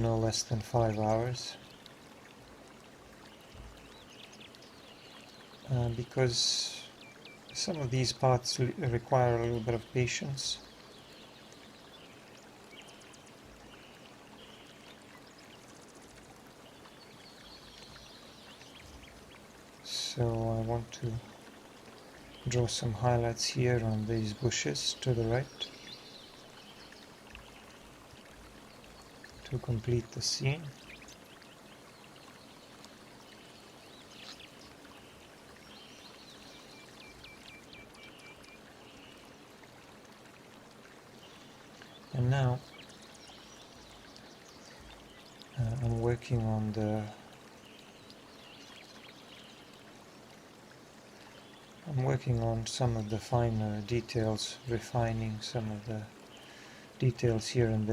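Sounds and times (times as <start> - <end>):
flowing water: 0.0 - 57.9
faint rushing hiss: 2.4 - 12.2, 12.8 - 39.8
faint bird chirps: 23.8 - 39.3.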